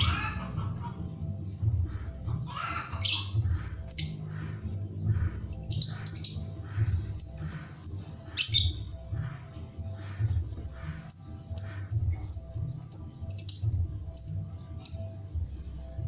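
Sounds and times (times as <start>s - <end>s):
low pulsing hum: 0.0s - 2.5s, 3.3s - 16.0s
bird chirping high and sharp: 2.8s - 4.3s, 5.6s - 6.6s, 7.2s - 9.0s, 11.0s - 15.2s.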